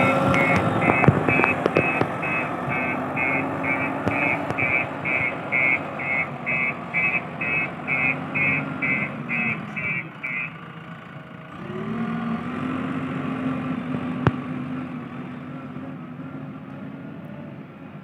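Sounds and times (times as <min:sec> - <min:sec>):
reversing alarm beeping: 0:00.0 - 0:10.6
diesel engine running: 0:00.0 - 0:18.0.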